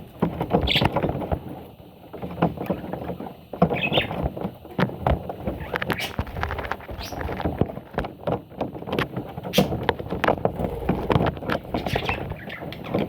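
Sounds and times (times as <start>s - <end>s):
chicks scratching and rustling: 0.0s - 13.0s
chicks squeaking: 3.7s - 4.2s, 5.6s - 7.6s, 10.4s - 13.0s.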